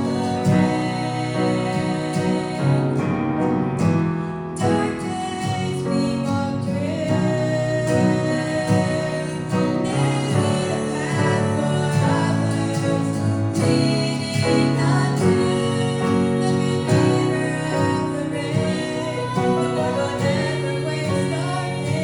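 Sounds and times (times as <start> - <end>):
guitar: 0.0 - 22.0
piano: 0.0 - 22.0
two women singing gospel duet: 0.0 - 22.0.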